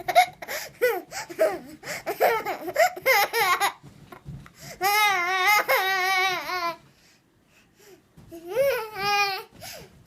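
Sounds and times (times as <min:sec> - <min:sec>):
baby laughing: 0:00.0 - 0:03.8.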